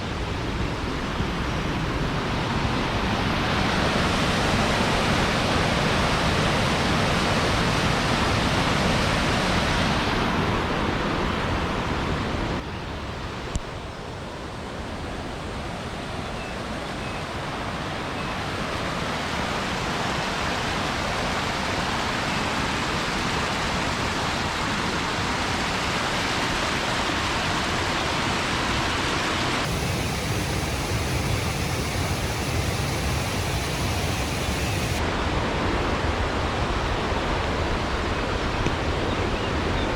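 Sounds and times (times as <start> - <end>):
waterfall rushing: 29.7 - 35.0.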